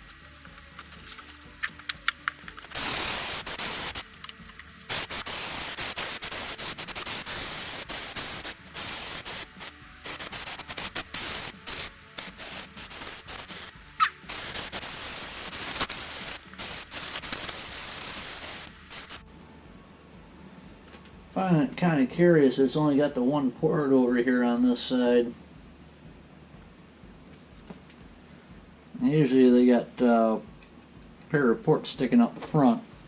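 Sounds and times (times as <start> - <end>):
hissing pressurised jet: 2.7 - 4.2, 4.9 - 19.2.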